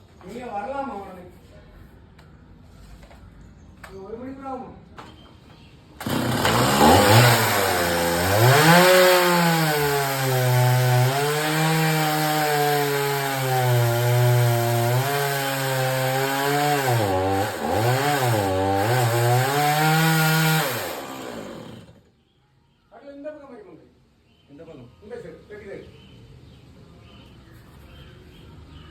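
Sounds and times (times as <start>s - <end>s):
chainsaw cutting wood: 6.0s - 22.0s.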